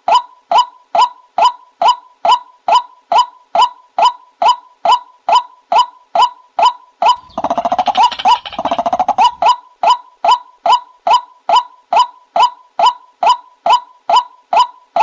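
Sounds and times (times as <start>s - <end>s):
fast rattling chatter: 7.2s - 9.5s
waterhen calling: 7.2s - 9.5s.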